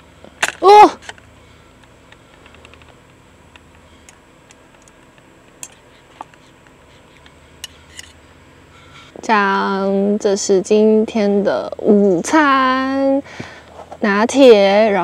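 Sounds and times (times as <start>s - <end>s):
low steady background: 0.0s - 15.0s
small clicks and light taps: 1.8s - 7.8s.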